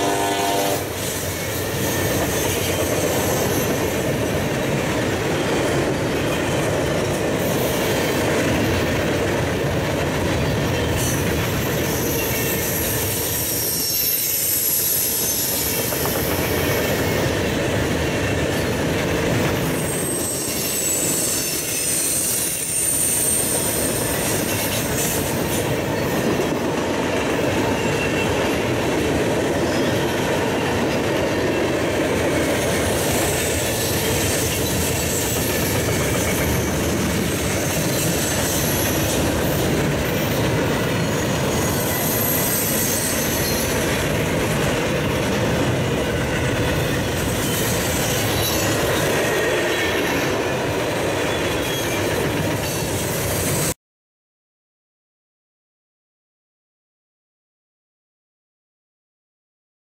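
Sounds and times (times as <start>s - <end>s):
train wheels rumbling on rail: 0.0s - 53.8s
high wheel squeal: 0.8s - 4.1s, 10.9s - 17.1s, 19.6s - 25.3s, 32.8s - 44.0s.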